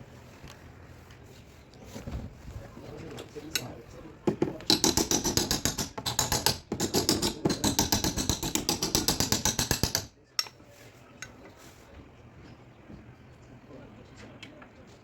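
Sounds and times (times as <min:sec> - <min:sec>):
tool tapping car body panel: 0:04.3 - 0:10.1.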